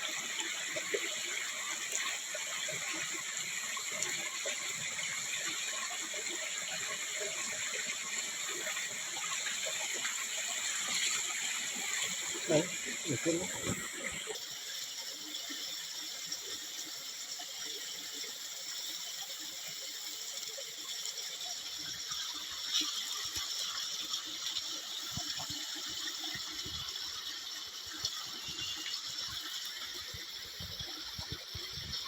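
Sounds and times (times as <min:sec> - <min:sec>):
forest ambience hiss: 0:10.8 - 0:32.0.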